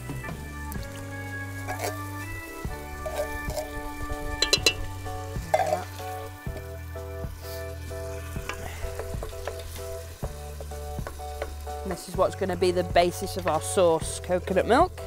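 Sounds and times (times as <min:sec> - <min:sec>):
cream sizzling in a pan: 0:00.4 - 0:15.0
spoon stirring: 0:01.6 - 0:02.1, 0:02.7 - 0:06.6
spoon clinking: 0:04.4 - 0:04.9, 0:05.5 - 0:05.9.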